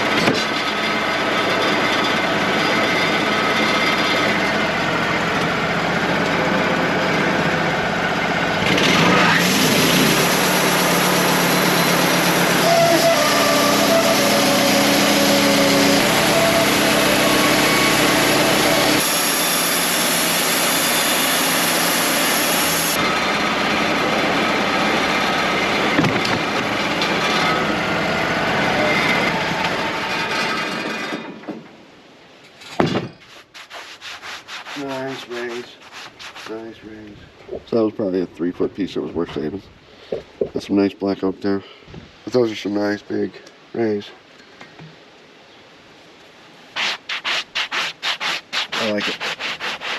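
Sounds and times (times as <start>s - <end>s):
bandsaw cutting log: 0.0s - 31.4s, 33.3s - 36.6s, 46.8s - 49.9s.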